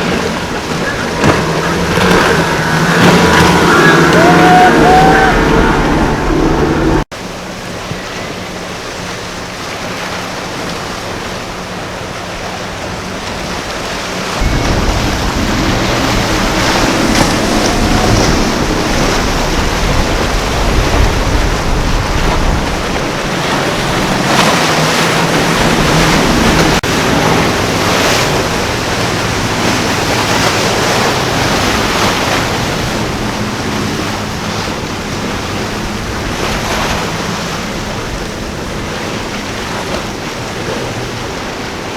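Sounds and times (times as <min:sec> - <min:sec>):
wind buffeting microphone: 0:00.0 - 0:07.1, 0:12.4 - 0:41.9
boat engines droning: 0:00.0 - 0:41.9
surf and churning water: 0:00.0 - 0:41.9.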